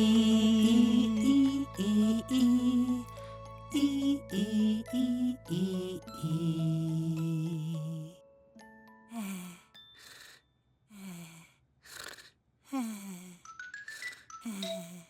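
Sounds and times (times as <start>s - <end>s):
cartoon sleepy sighing breaths: 9.1s - 15.0s.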